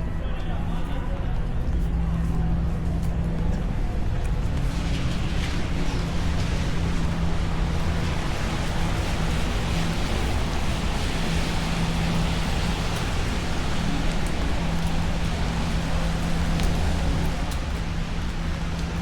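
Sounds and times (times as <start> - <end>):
rain hissing: 4.4 - 19.0.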